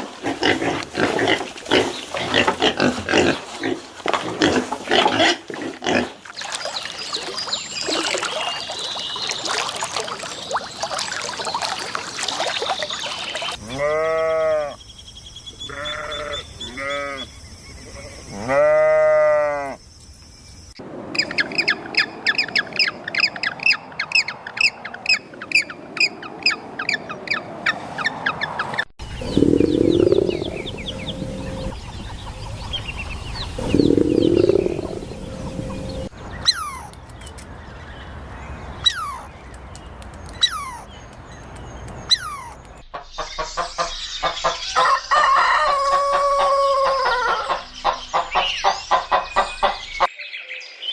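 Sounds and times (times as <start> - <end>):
animal bleats: 13.6 - 14.8, 15.7 - 17.3, 18.3 - 19.8
long low animal calls: 29.0 - 36.1
chorus of high chirps: 29.0 - 36.8.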